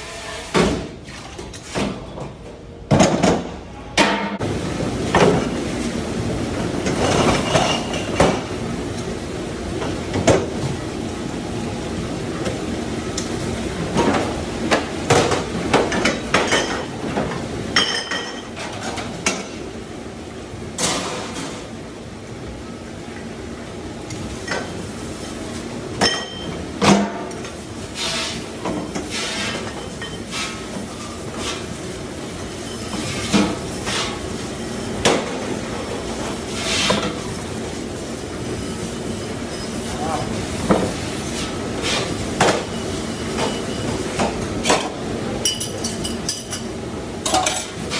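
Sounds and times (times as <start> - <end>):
steady background hum: 0.0 - 47.9
steady mechanical noise: 0.0 - 47.9
dishes and cutlery clattering: 45.4 - 47.8.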